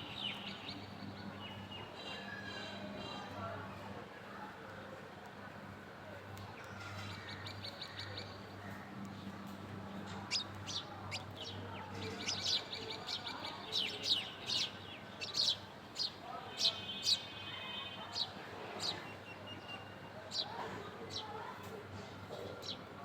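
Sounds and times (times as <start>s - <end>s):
small birds chirping: 0.0s - 1.9s, 6.6s - 21.7s, 22.6s - 22.9s.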